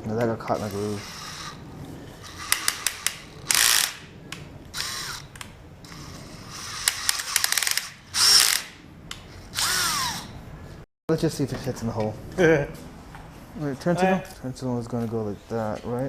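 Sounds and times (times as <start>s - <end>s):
power drill drilling into metal: 2.4s - 4.0s, 5.9s - 8.7s, 9.6s - 10.3s
drill bit clicking on metal: 6.7s - 8.7s.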